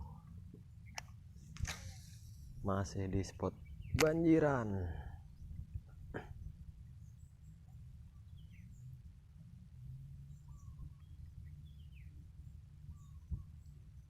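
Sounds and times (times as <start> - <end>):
faint bird chirps: 3.2 - 14.0.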